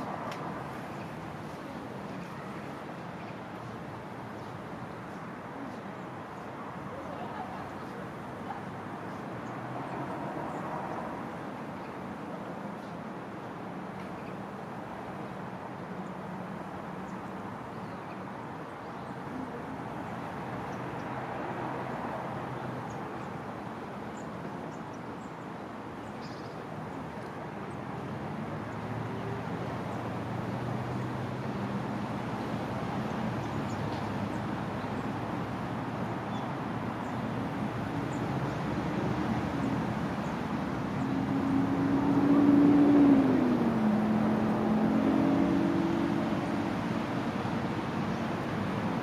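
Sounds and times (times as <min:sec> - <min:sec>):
road traffic: 0:00.0 - 0:49.0
vehicle engine approaching: 0:40.8 - 0:47.2.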